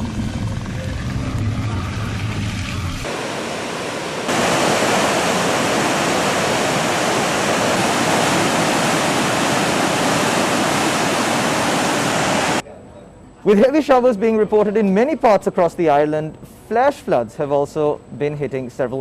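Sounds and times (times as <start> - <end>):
low rumble: 0.0 - 3.1
rushing water: 2.3 - 12.6.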